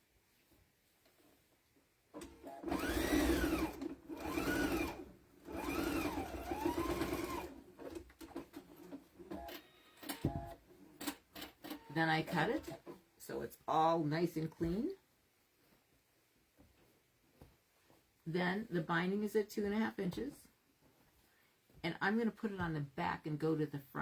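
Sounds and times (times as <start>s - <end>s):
sewing machine stitching: 2.2s - 13.0s.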